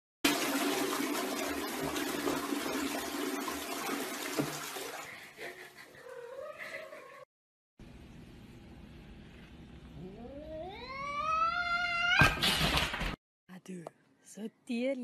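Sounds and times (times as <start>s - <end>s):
toilet flushing: 0.2s - 5.8s
cat meowing: 10.0s - 12.4s.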